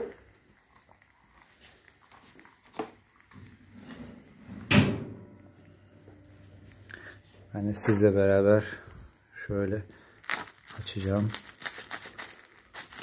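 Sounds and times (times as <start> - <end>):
loud clunk: 4.7 - 5.3.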